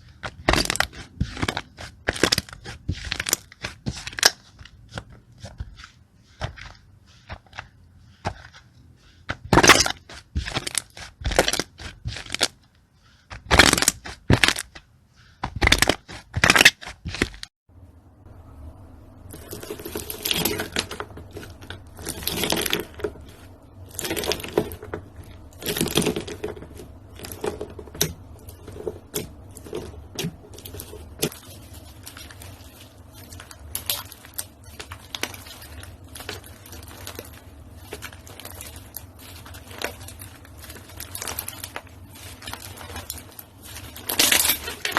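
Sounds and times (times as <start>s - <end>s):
steady low hum: 17.7s - 44.9s
slime crackling and popping: 19.3s - 44.9s.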